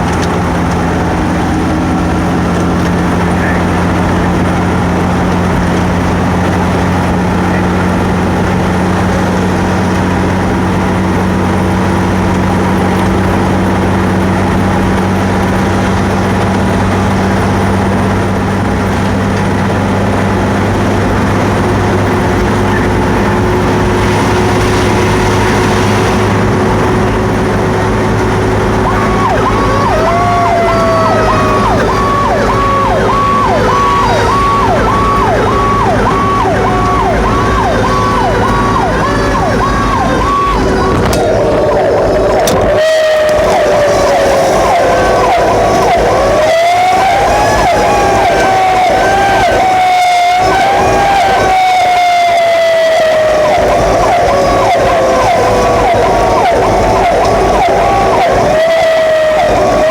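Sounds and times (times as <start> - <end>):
fire truck diesel engine running: 0.0 - 59.9
pulsing electronic siren: 0.0 - 59.9
siren tone sliding downward: 21.6 - 59.9.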